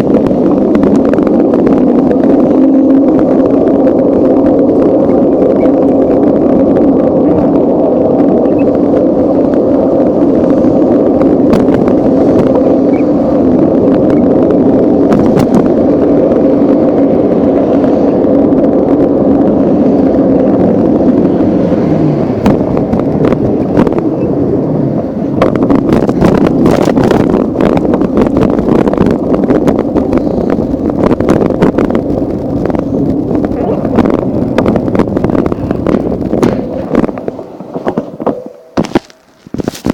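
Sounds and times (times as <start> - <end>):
bike riding rumble and drone: 0.0 - 39.9.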